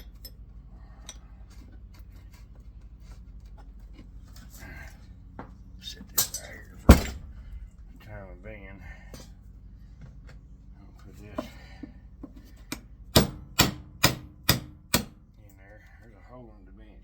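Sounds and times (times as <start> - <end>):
metal tools clinking on workbench: 6.2 - 6.9
sharp metallic knocks: 6.8 - 7.3, 13.1 - 15.2.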